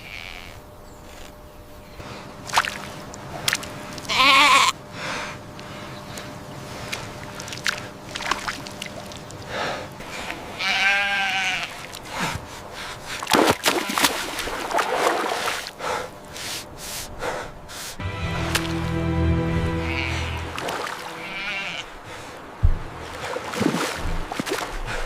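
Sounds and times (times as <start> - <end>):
splashing water: 2.4 - 4.1, 6.8 - 9.5, 13.3 - 15.7, 22.2 - 25.0
lamb bleating: 4.1 - 4.8, 10.6 - 11.8, 21.2 - 21.9.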